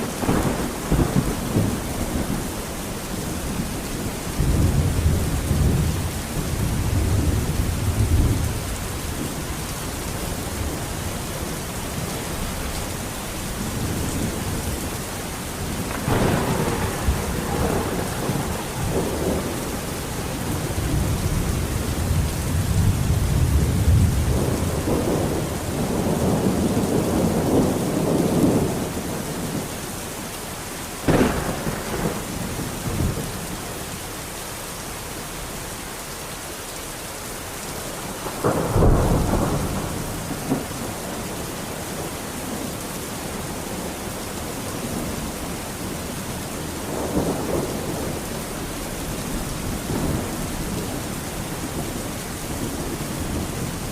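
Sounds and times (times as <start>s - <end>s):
sharp thunderclap: 0.0s - 2.6s, 15.8s - 29.6s, 31.1s - 33.3s, 38.2s - 41.2s
thunder rumbling: 0.0s - 29.9s, 31.0s - 33.9s, 37.8s - 53.9s
steady rain: 0.0s - 53.9s.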